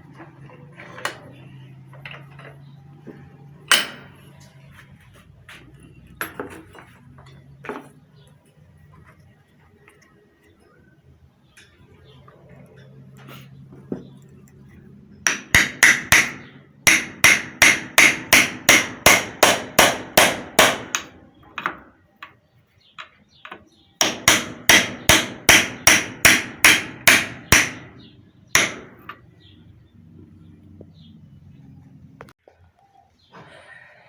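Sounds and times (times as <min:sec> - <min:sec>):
hammer striking metal: 0:03.7 - 0:04.3, 0:15.2 - 0:21.8, 0:24.0 - 0:29.2.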